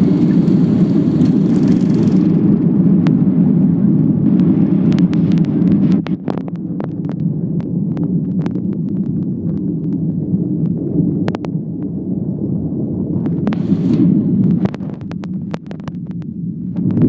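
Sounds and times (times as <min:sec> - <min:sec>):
rush of high-pitched noise: 0:00.0 - 0:02.4
airliner engine rumble: 0:00.0 - 0:17.0.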